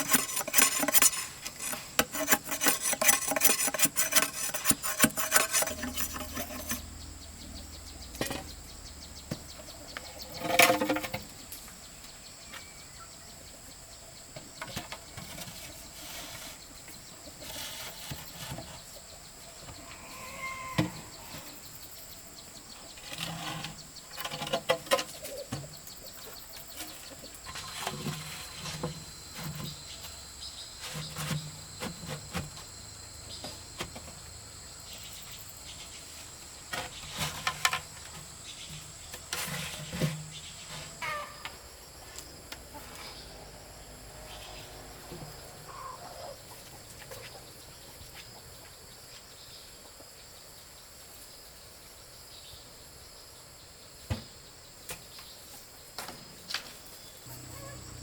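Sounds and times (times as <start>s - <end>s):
insects shrilling: 19.7s - 22.2s, 57.3s - 58.0s.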